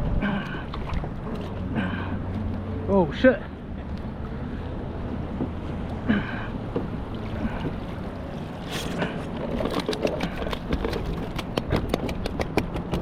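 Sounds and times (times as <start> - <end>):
water splashing and trickling: 0.0 - 13.0.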